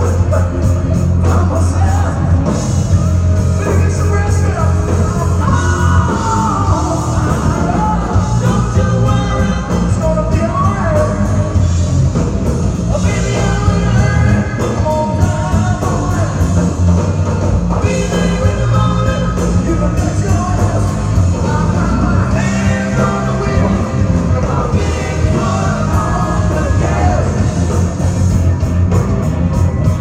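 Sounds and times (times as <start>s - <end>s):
person singing: 0.0s - 11.6s, 17.7s - 28.0s
rock band playing: 0.0s - 30.0s.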